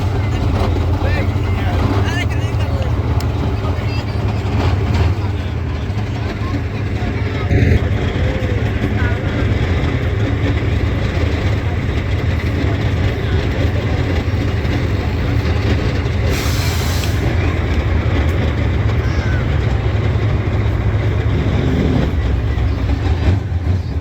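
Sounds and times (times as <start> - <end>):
diesel truck engine rumbling: 0.0 - 24.0
hiss of released air: 16.3 - 17.3.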